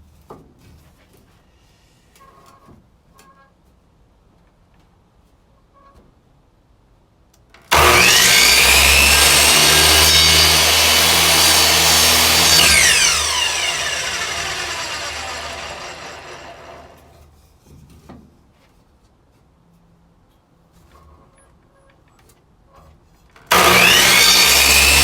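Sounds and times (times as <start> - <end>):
electric miter saw running: 7.7 - 17.1, 23.5 - 25.0.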